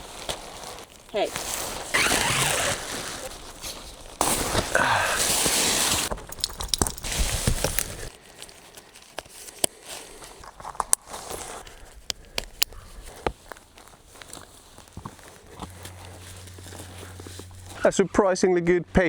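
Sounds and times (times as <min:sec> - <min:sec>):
tent fabric rustling: 0:00.0 - 0:12.1, 0:12.8 - 0:17.9
crunches and clicks: 0:00.2 - 0:03.3, 0:10.4 - 0:16.6.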